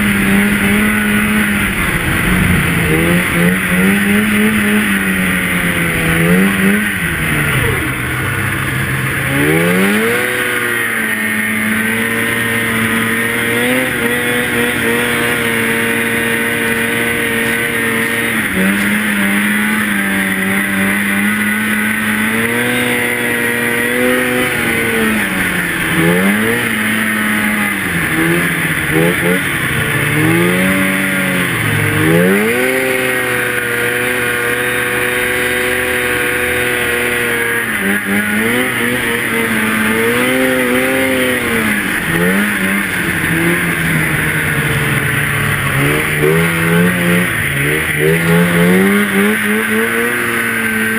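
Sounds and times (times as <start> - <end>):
snowmobile engine revving: 0.0 - 50.9.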